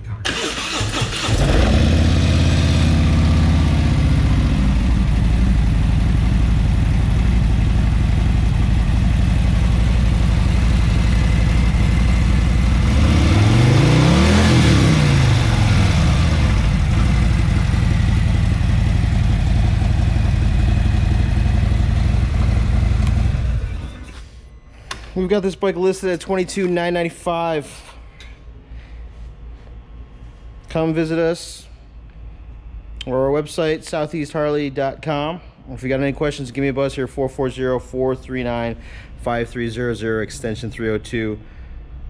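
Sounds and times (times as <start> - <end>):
motorcycle engine idling and revving: 0.5 - 24.2.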